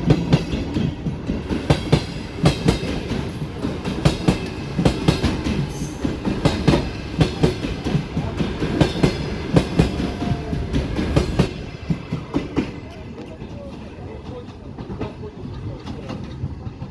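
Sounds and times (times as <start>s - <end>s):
train rumble: 0.0s - 16.9s
train wheels clattering on rails: 0.0s - 16.9s.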